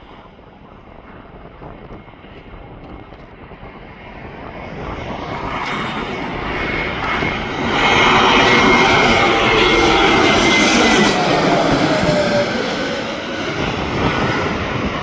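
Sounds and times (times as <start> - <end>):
jet engines roaring: 0.0 - 15.0
high steady whine: 4.2 - 15.0.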